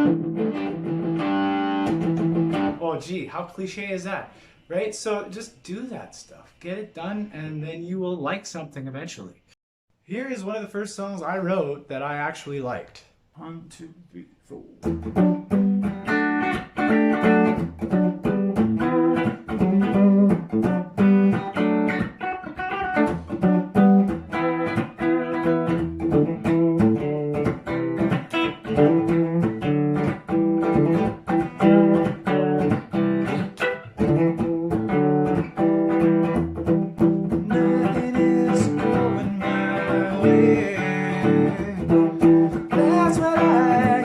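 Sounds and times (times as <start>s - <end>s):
guitar strumming chords: 0.0s - 2.8s, 14.8s - 44.0s.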